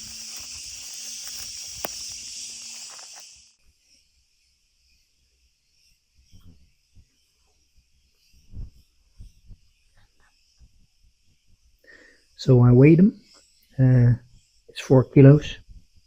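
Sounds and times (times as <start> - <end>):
insects shrilling: 0.0 - 3.6.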